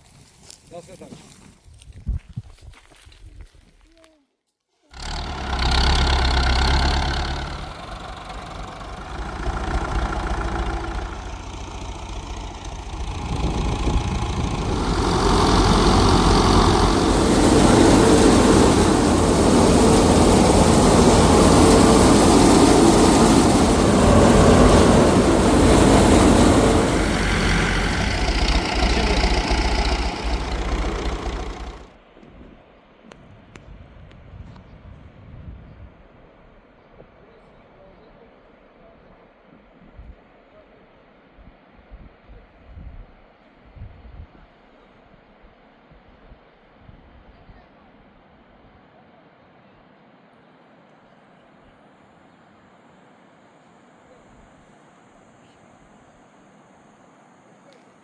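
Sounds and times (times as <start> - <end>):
engine humming: 4.9 - 31.9.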